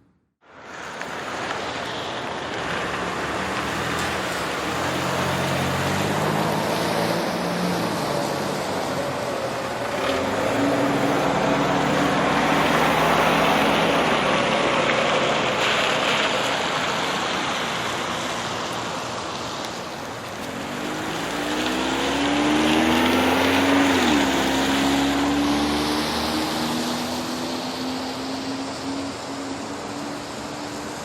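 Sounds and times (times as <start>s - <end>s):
vehicles passing by: 0.6s - 31.0s.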